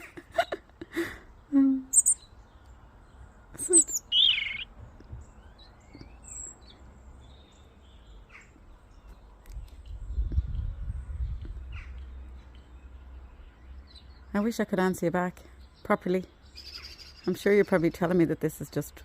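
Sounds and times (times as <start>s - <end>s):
faint bird chirps: 1.5s - 2.4s, 3.5s - 10.6s
robin calling: 1.7s - 2.6s, 3.5s - 9.2s, 11.5s - 19.0s.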